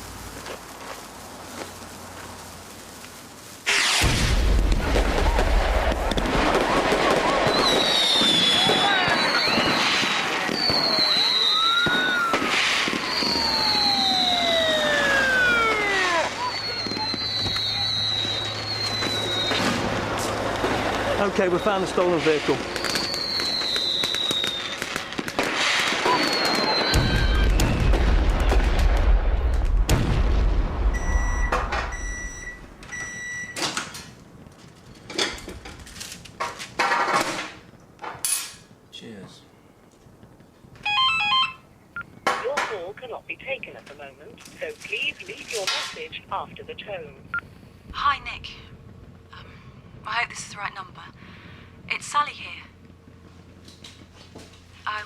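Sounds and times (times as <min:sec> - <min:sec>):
firework crackle: 0:00.0 - 0:38.0, 0:39.7 - 0:40.9, 0:43.7 - 0:55.0
firework whistles falling in pitch: 0:05.0 - 0:20.4, 0:21.3 - 0:29.9, 0:30.8 - 0:33.6
low rumble: 0:26.9 - 0:33.1, 0:46.0 - 0:54.7
short electronic beeps: 0:31.0 - 0:33.6.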